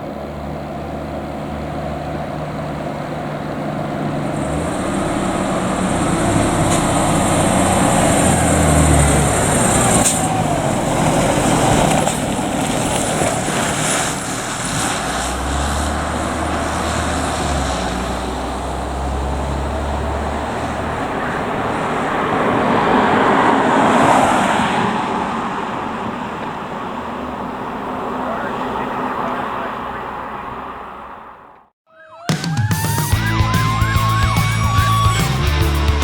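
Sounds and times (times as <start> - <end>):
heavy engine low rumble: 0.0 - 31.7
vehicles going by: 0.0 - 31.7, 33.2 - 36.0.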